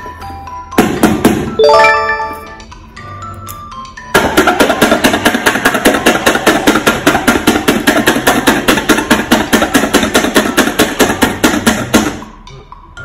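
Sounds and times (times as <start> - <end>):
rapid knocking: 4.2 - 12.2.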